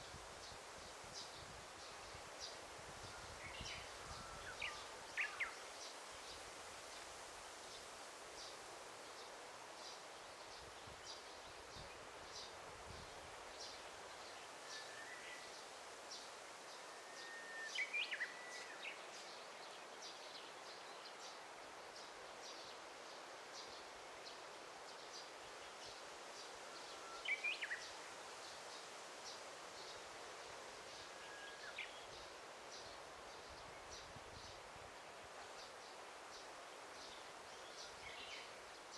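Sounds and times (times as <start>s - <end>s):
soft forest hiss: 0.0s - 38.9s.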